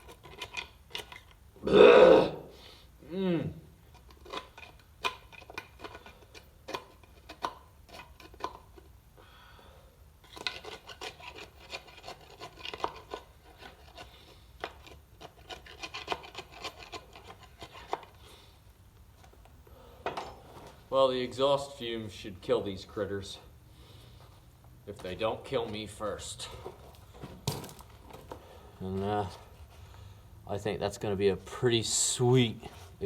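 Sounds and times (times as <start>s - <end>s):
hard objects rubbing and scraping: 10.2s - 18.3s.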